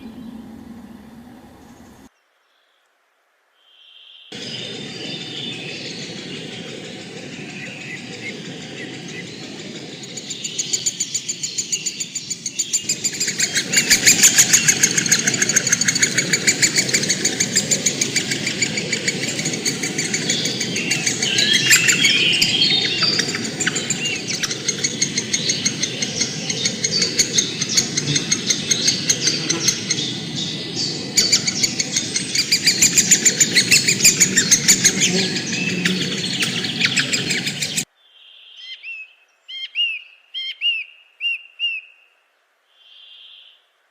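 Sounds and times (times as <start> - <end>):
chorus of birds chirping: 0.0 - 2.1, 3.9 - 42.1.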